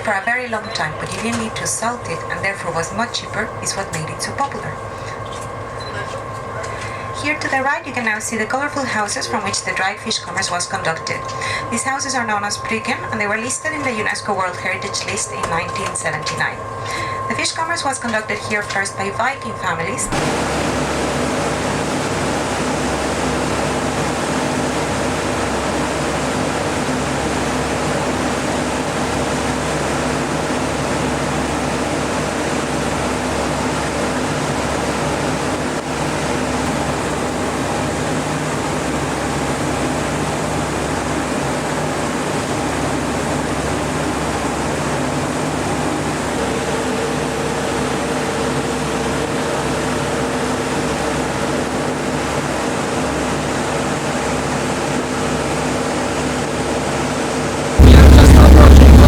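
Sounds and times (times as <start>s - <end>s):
low hum: 0.0s - 26.8s, 57.8s - 59.0s
vehicle engine drone: 0.0s - 31.6s, 57.8s - 59.0s
rushing noise: 57.8s - 59.0s.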